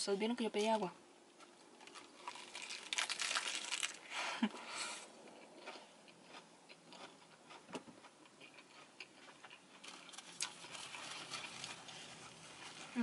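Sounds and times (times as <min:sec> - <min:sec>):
small crunches: 0:01.4 - 0:04.5, 0:08.4 - 0:13.0
chewing with wet mouth clicks: 0:08.2 - 0:12.9.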